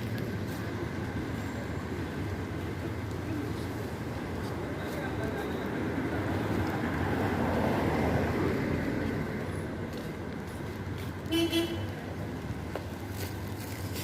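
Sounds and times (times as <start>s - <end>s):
road traffic passing: 0.0s - 14.0s
car horn beeps: 11.3s - 11.9s.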